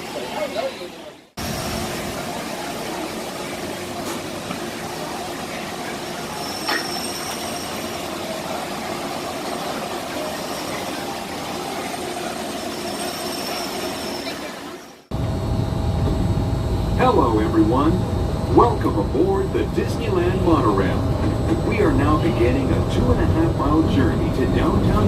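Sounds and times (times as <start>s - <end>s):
train running on track: 0.0s - 25.0s
high wheel squeal: 5.9s - 15.0s.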